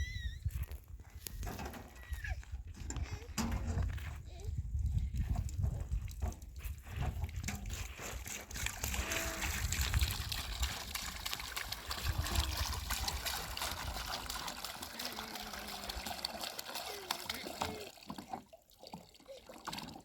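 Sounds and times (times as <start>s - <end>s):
trickling water: 4.3s - 20.0s.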